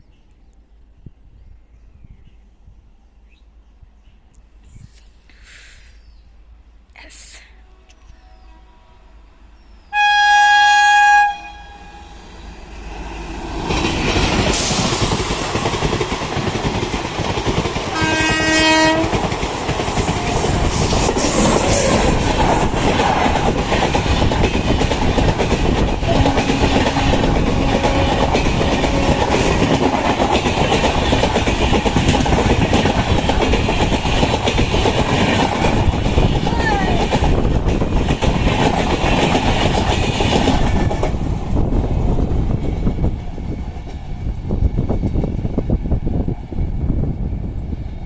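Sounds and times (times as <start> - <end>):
train horn blast: 7.7 - 9.3, 9.9 - 12.2, 17.9 - 19.2, 26.0 - 29.6
train carriages rumbling on rails: 12.2 - 48.0.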